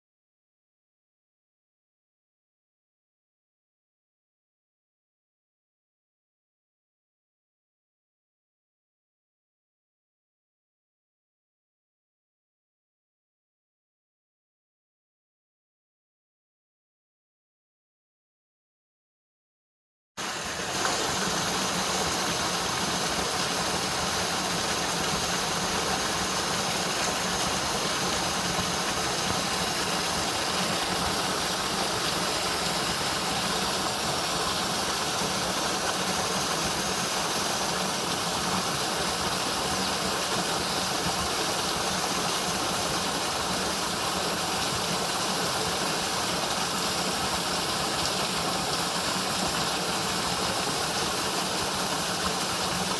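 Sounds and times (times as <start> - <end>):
waterfall roaring: 20.2 - 52.9.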